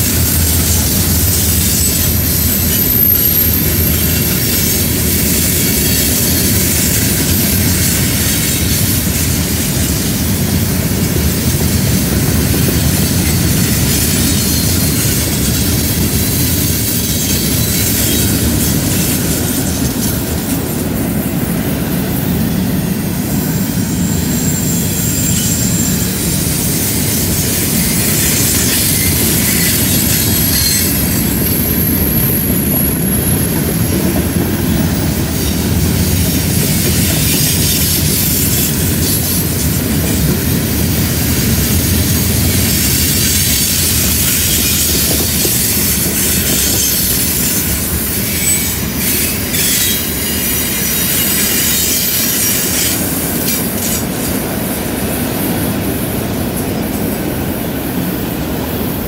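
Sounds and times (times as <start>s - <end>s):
train wheels rumbling on rail: 0.0s - 59.0s
high-pitched wheel squeal: 0.1s - 9.6s, 23.4s - 54.0s.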